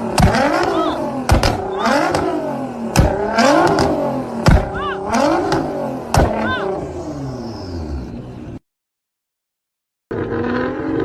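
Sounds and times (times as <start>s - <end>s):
sharp exhaust bangs: 0.0s - 8.2s
car engine revving: 0.0s - 8.6s, 10.1s - 11.0s.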